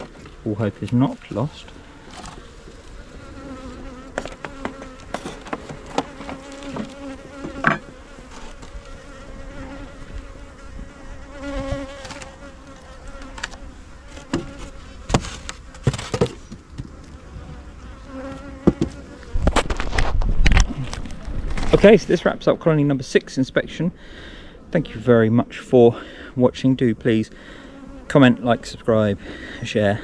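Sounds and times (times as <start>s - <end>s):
honey bees buzzing: 0.0s - 19.5s, 23.7s - 30.0s
hive clicks and knocks: 4.1s - 8.8s.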